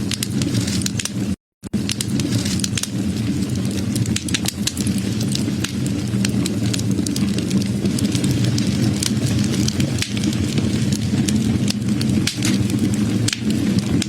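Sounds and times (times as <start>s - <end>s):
burning wood crackling and popping: 0.0s - 14.0s
low rumble of flames: 0.0s - 14.0s.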